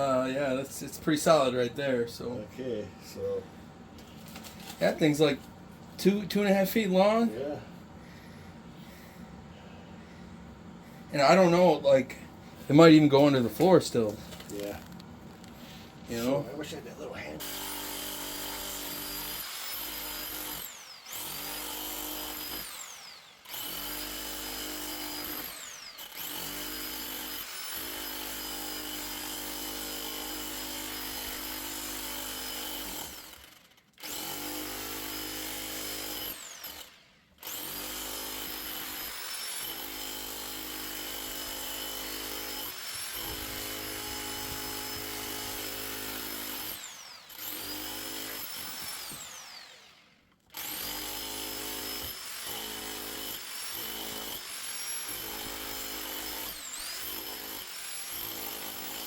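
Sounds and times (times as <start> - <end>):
power tool motor whine: 17.4 - 29.1, 36.1 - 40.4, 41.3 - 59.0.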